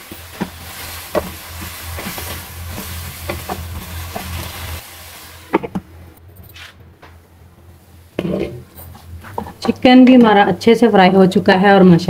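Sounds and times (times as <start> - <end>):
chicken sizzling in oil: 0.0 - 5.7
wooden spatula scraping wok: 0.0 - 5.9, 8.2 - 9.9.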